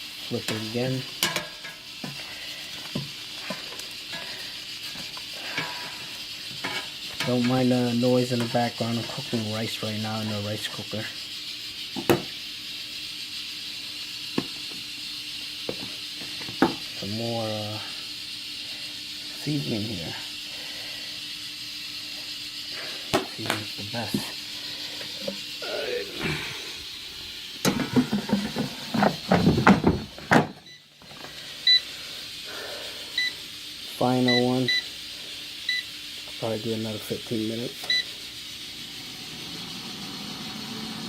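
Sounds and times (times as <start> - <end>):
rice cooker steam hiss: 0.0 - 41.0
faint hum: 22.0 - 35.9.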